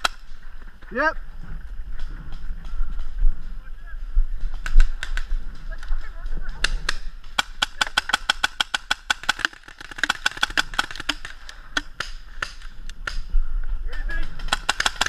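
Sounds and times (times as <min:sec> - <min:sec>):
paintball markers firing: 0:06.4 - 0:13.3, 0:14.2 - 0:15.0.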